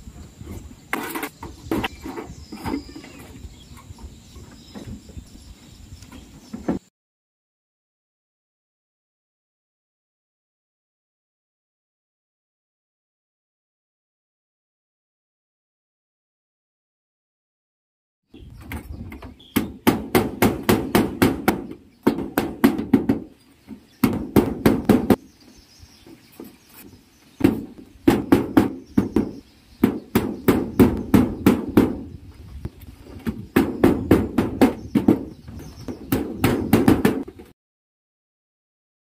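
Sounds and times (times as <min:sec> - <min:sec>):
hammer driving nails into metal roofing: 0:19.5 - 0:23.3, 0:24.0 - 0:25.2, 0:27.4 - 0:32.0, 0:35.9 - 0:37.3.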